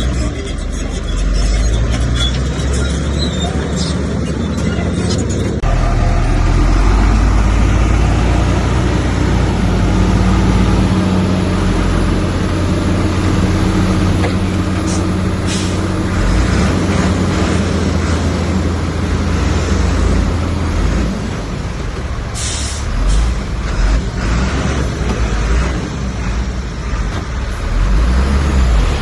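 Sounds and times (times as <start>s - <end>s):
heavy diesel machinery running: 0.0s - 29.0s
air brake hiss: 22.4s - 23.2s.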